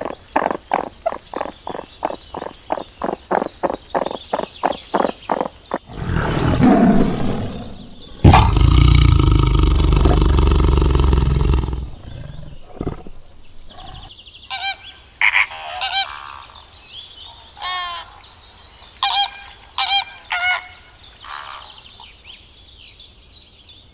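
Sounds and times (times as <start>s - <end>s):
animal croaks: 0.0s - 14.1s
sharp bird calls: 0.0s - 22.8s
long loud animal roar: 5.9s - 14.1s.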